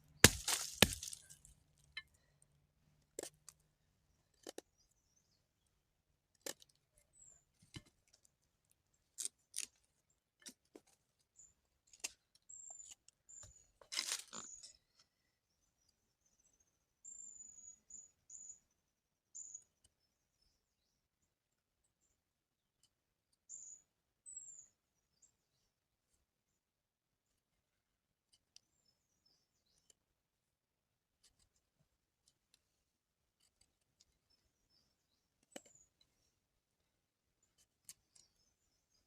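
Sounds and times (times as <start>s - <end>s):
small bird chirping: 11.4s - 21.0s, 23.3s - 25.7s, 33.4s - 39.0s.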